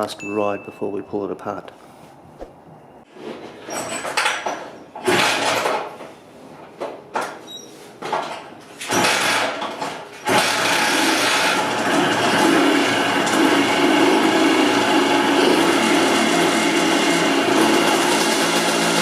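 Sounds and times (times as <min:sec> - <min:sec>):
motorcycle engine starting: 0:05.0 - 0:05.9, 0:08.8 - 0:19.0.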